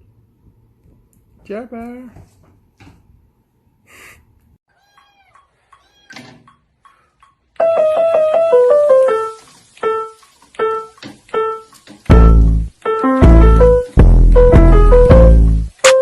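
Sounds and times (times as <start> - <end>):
piano notes: 7.5 - 16.0.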